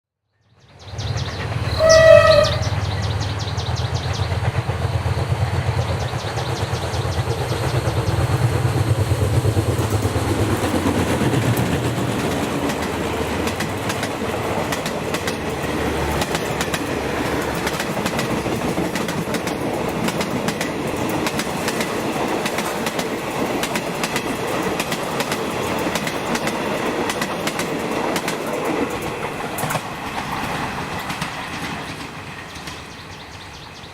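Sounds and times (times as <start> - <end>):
wheels clattering on rails: 1.0 - 33.6
train horn blast: 1.7 - 2.9.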